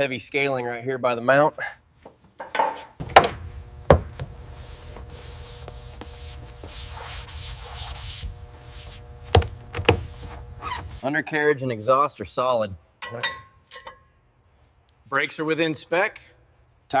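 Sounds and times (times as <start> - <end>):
sharp knocks: 2.4 - 4.3
steady low hum: 3.0 - 11.1
hissy scraping strokes: 4.1 - 9.3, 10.0 - 11.1.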